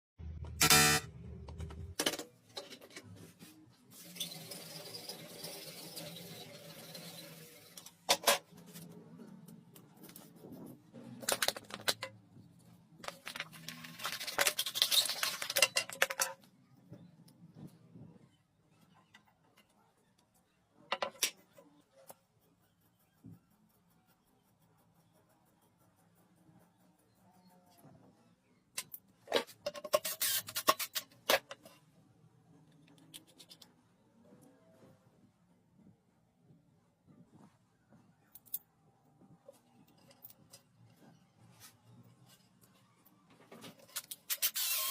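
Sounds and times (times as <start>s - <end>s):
hard objects clicking and clattering: 11.2s - 12.2s, 13.0s - 16.5s.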